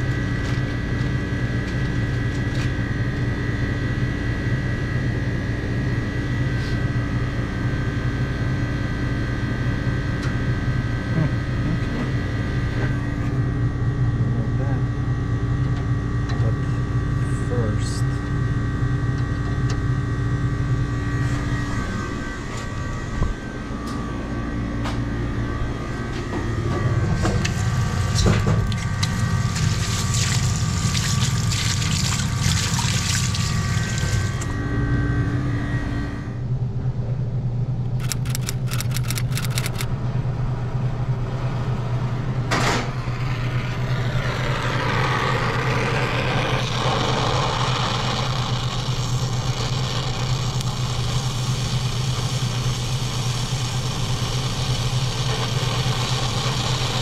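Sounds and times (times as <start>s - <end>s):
steady machine hum: 0.0s - 57.0s
tap water running into sink: 29.0s - 34.4s
quick clicks: 38.0s - 39.9s
torch flame hissing: 43.8s - 57.0s.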